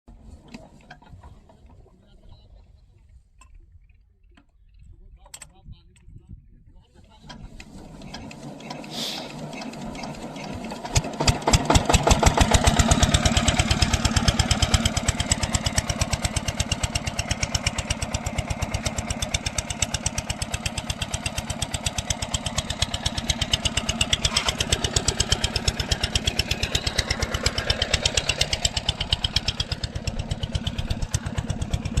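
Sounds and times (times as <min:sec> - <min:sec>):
diesel water pump engine starting: 0:07.1 - 0:32.0.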